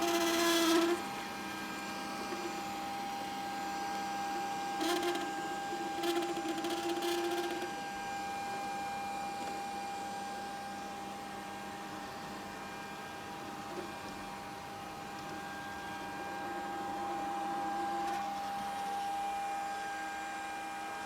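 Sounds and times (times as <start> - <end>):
robot vacuum motor whine: 0.0 - 10.0.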